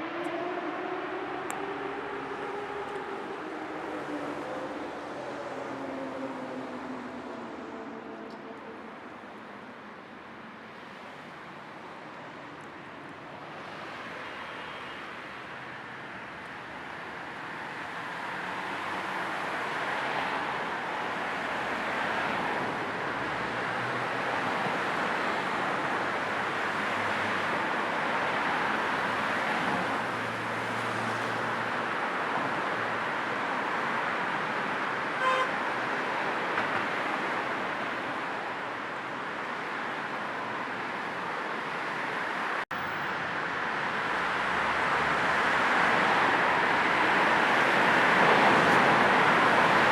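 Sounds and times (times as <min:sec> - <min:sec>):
car road and tyre noise: 0:00.0 - 0:49.9
car horn toot: 0:35.2 - 0:35.5.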